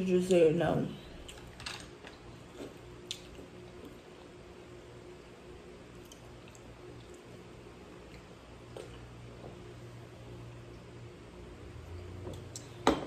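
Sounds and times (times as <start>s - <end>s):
steady low hum: 0.0s - 13.0s
faint chewing: 6.0s - 9.2s.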